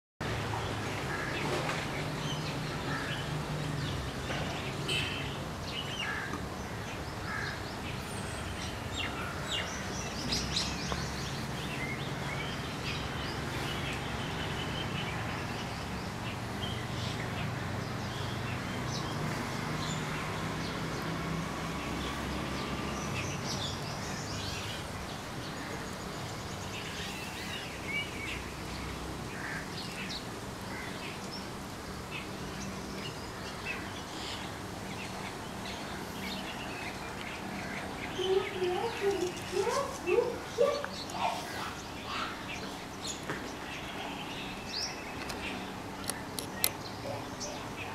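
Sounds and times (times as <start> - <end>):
small birds chirping: 0.6 - 47.9.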